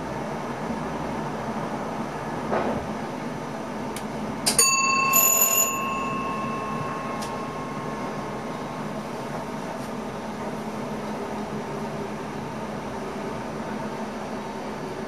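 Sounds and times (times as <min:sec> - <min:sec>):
train running noise: 0:00.0 - 0:15.0
bell ringing: 0:04.6 - 0:09.4.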